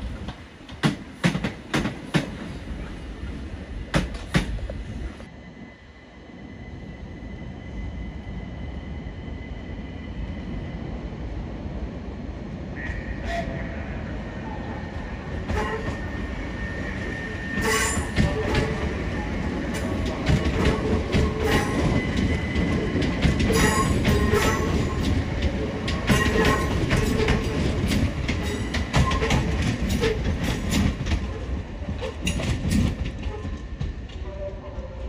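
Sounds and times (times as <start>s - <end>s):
train wheels clacking: 0.2s - 2.5s, 3.9s - 4.8s, 15.4s - 34.2s.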